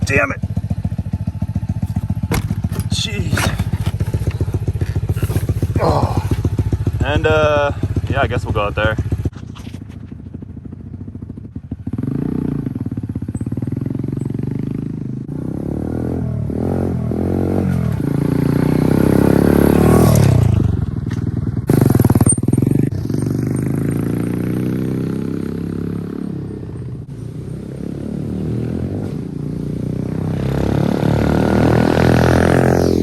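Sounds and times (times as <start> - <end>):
dirt bike engine revving: 0.1 - 8.4, 11.8 - 20.7, 21.6 - 26.5, 27.4 - 33.0.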